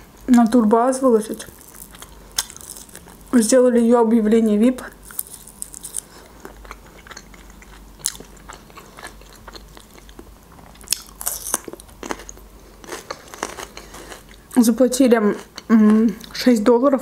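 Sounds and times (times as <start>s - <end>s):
crisp crunches of bell pepper: 1.3s - 3.4s, 4.9s - 14.3s
close chewing: 1.4s - 3.4s, 5.0s - 14.4s.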